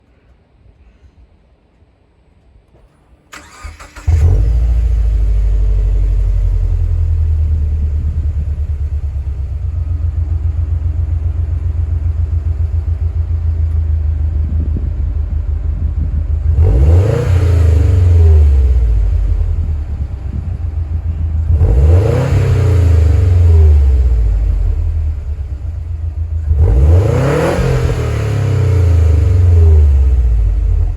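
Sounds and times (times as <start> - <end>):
car engine starter cranking: 3.3 - 4.5
car engine revving: 3.4 - 13.2, 16.4 - 30.9
car engine idling: 3.4 - 30.9.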